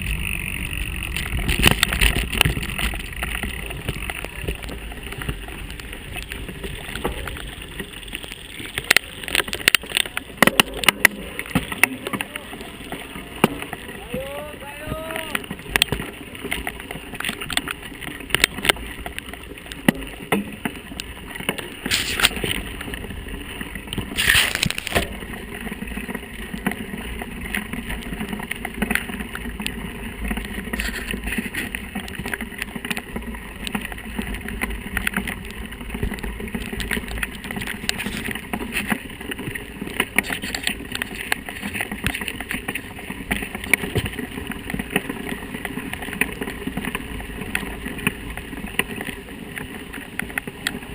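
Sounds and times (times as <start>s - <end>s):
wind rumble on microphone: 0.0s - 16.4s
bike rattling and knocking: 0.0s - 50.9s.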